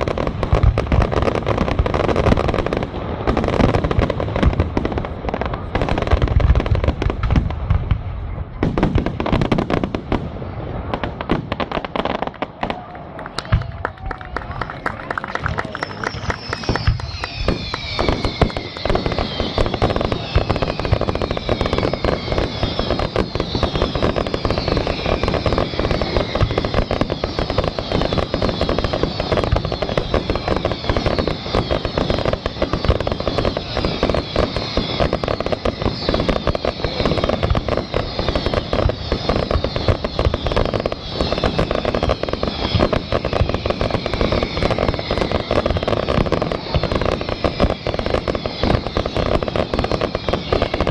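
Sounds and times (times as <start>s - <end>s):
fireworks bangs and crackling: 0.0s - 50.9s
whistles falling in pitch: 14.5s - 46.0s.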